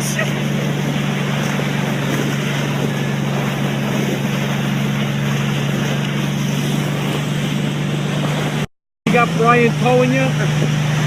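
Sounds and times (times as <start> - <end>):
wind on microphone: 0.0 - 8.7
vehicle engine droning: 0.0 - 11.0.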